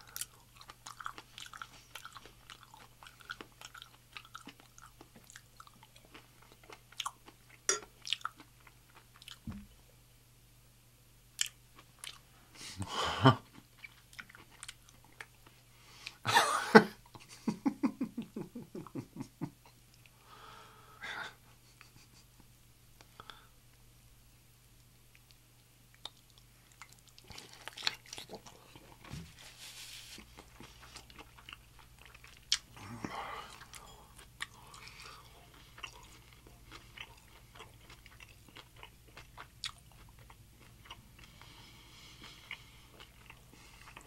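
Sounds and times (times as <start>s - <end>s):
wet chewing with mouth clicks: 0.0s - 9.6s, 13.4s - 16.2s, 25.1s - 29.1s, 30.2s - 44.0s.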